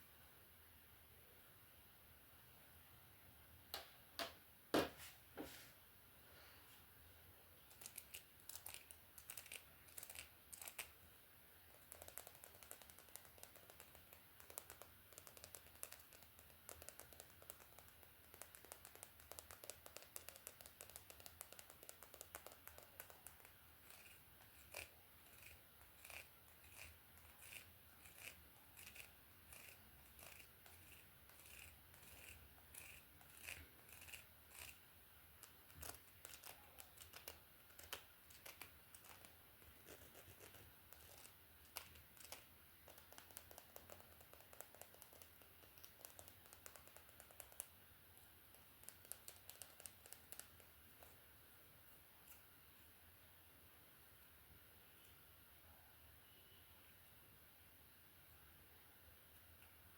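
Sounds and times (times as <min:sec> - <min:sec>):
comb drawn through hair: 0:23.8 - 0:34.8.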